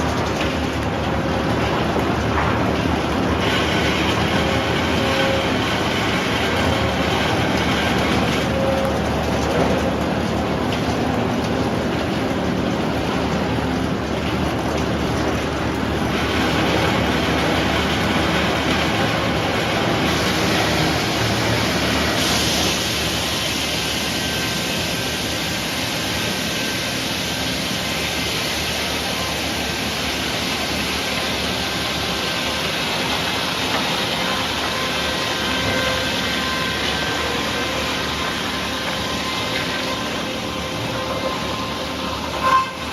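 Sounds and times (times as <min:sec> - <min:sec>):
sawmill engine running: 0:00.0 - 0:42.9
saw cutting log: 0:16.1 - 0:23.8.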